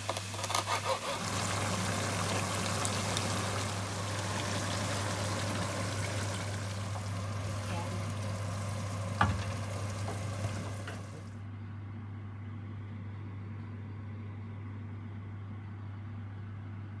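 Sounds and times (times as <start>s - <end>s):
chicken sizzling in frying pan: 0.0s - 11.3s
wooden spoon knocking on pan: 9.1s - 11.1s.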